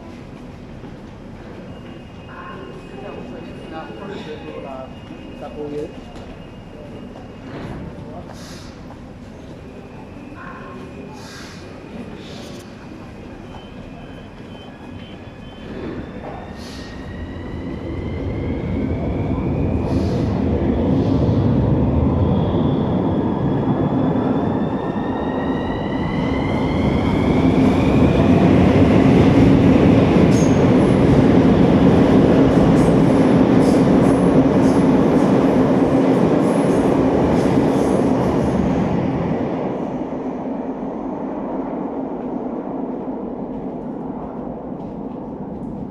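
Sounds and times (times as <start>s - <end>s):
wheels rumbling on rail: 0.0s - 45.9s.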